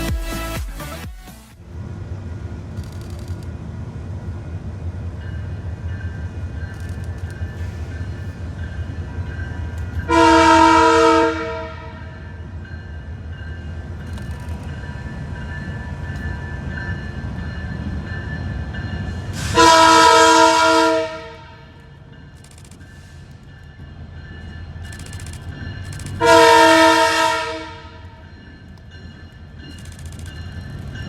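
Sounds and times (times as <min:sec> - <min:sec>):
moving train rumble: 0:00.0 - 0:31.0
locomotive horn blasts: 0:10.0 - 0:12.3, 0:19.4 - 0:21.9, 0:26.0 - 0:28.2.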